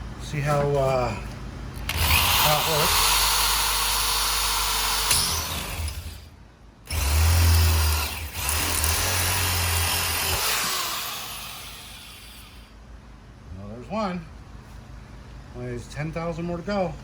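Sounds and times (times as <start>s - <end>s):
power drill boring rivet: 1.8s - 6.2s, 6.9s - 12.6s.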